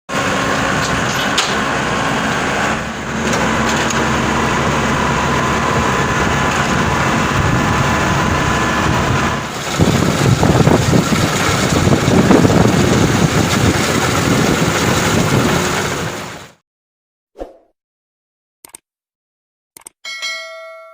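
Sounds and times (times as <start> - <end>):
combine harvester engine whining: 0.1 - 16.6.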